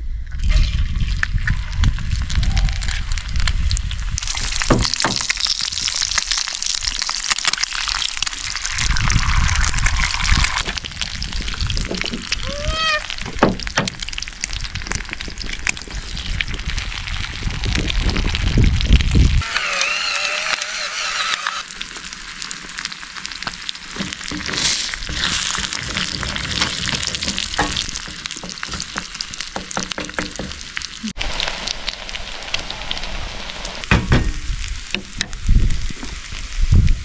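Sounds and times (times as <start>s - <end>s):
food sizzling in a frying pan: 1.7s - 11.8s, 21.6s - 26.2s, 30.6s - 37.0s.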